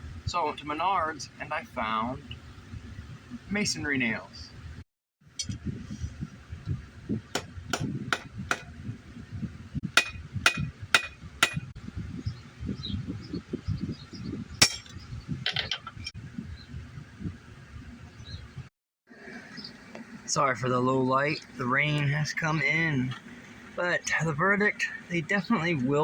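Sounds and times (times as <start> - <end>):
metal clatter: 14.6 - 16.1.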